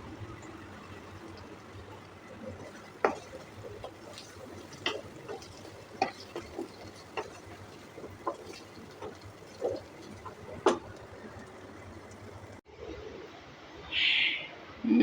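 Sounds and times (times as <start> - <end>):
utensil clinking in a pan: 2.4 - 11.0.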